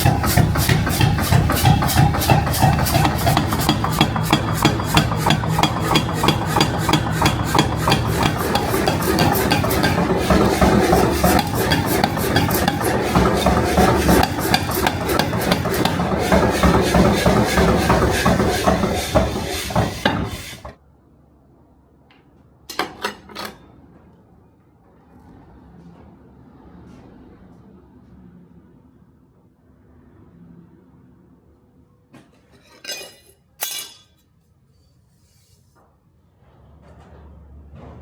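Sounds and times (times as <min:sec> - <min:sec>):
rapid metalworking strokes: 0:00.0 - 0:20.8.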